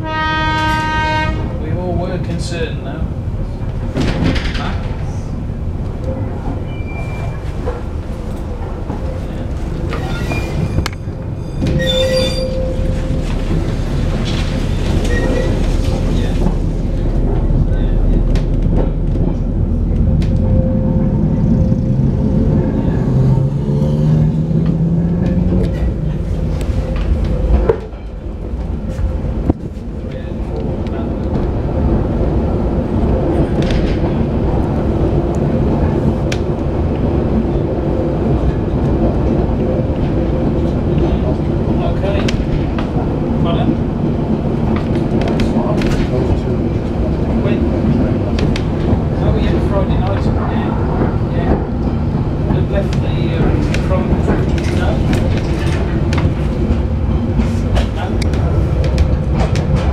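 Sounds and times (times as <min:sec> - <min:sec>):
train wheels on rail: 0:00.0 - 0:59.9
high wheel squeal: 0:06.6 - 0:07.5, 0:09.9 - 0:13.2.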